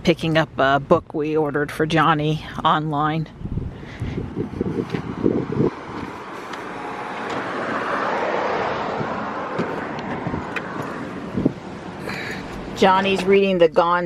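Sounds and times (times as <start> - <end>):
vehicle passing: 3.6 - 13.6.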